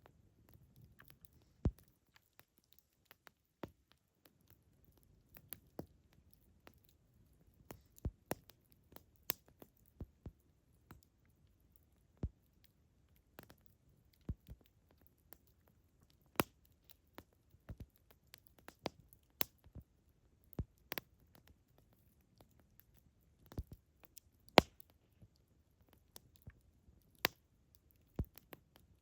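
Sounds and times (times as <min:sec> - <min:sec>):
campfire crackling: 0:13.4 - 0:13.6, 0:14.4 - 0:19.7, 0:20.6 - 0:21.5, 0:22.4 - 0:25.0, 0:25.8 - 0:28.8.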